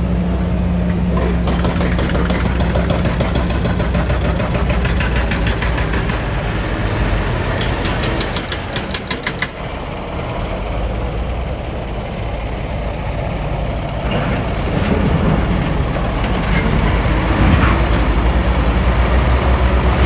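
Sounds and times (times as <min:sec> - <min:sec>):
heavy diesel engine running: 0:00.0 - 0:20.0
rapid metallic clattering: 0:07.4 - 0:09.6.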